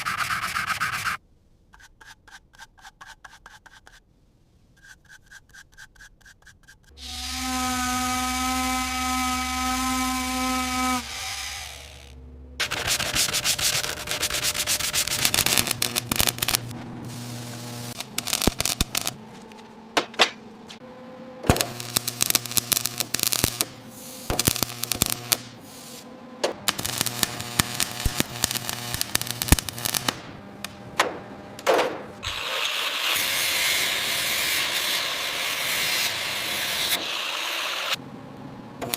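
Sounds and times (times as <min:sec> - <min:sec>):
rough rubbing and scraping: 0:00.0 - 0:04.1, 0:04.7 - 0:07.7, 0:10.5 - 0:20.9.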